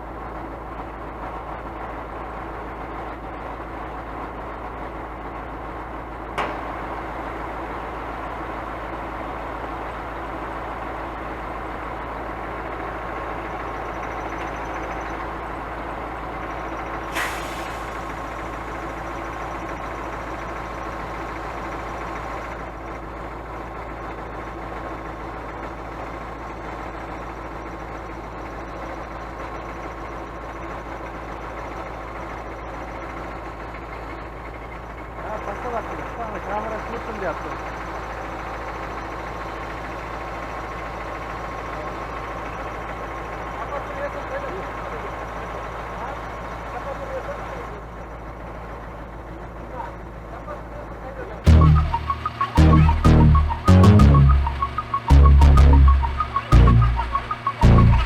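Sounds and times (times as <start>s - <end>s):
truck diesel engine running: 0.0s - 58.0s
short air hisses: 17.1s - 18.0s.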